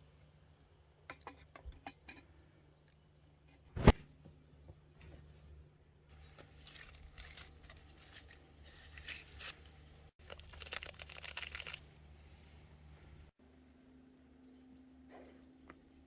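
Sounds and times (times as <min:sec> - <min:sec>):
dry rustling and crackling: 0:10.2 - 0:11.9.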